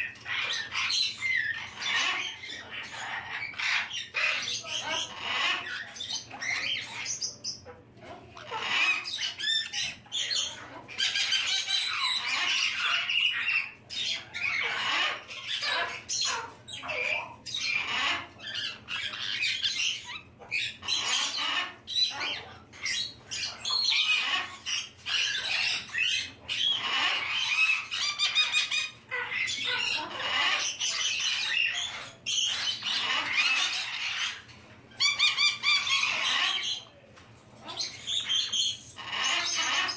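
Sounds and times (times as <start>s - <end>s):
parrots squawking and chattering: 0.0s - 39.9s.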